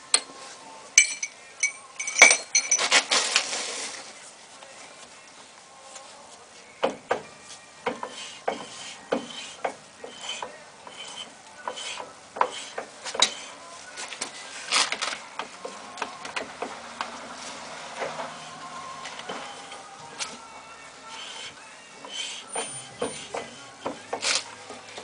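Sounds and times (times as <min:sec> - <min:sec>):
metal tools clinking: 0:01.0 - 0:03.3.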